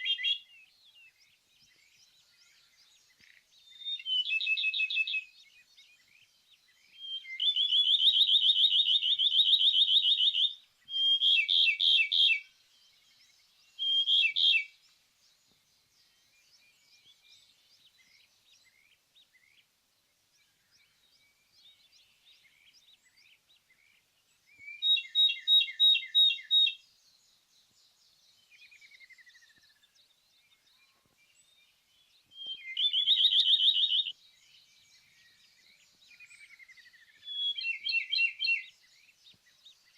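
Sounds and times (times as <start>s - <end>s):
faint high bird calls: 0.0s - 19.7s, 20.4s - 26.9s, 28.5s - 39.9s.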